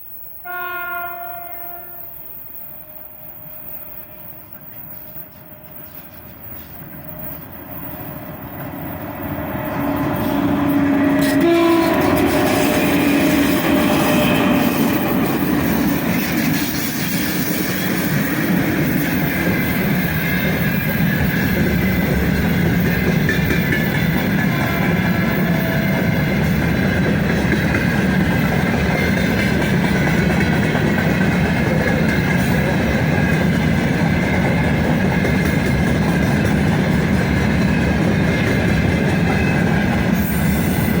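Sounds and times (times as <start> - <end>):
locomotive horn blast: 0.4 - 2.2, 10.4 - 14.8.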